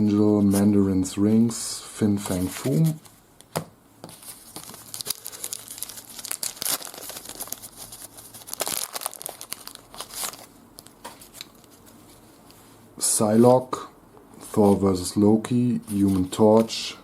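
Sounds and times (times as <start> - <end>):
wrapper torn and crinkled: 4.5 - 11.8.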